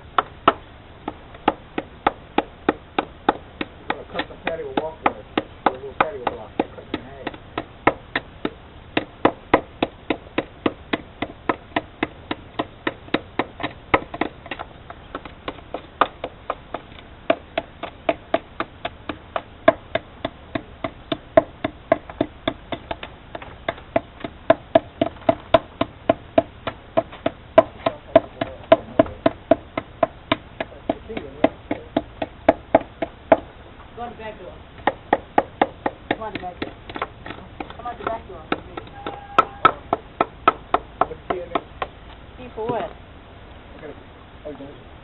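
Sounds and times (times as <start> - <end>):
hammer blows with ringing knock: 38.0 - 40.0.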